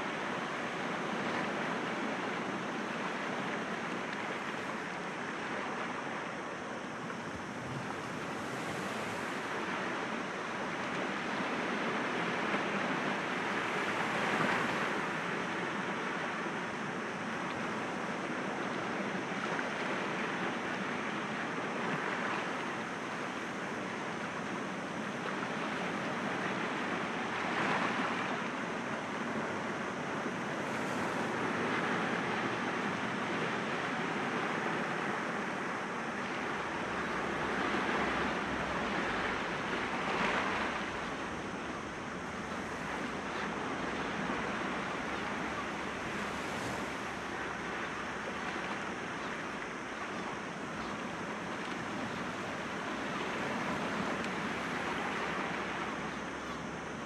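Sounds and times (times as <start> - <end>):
waves washing against rocks: 7.3 - 12.5, 30.4 - 34.2, 36.4 - 56.1.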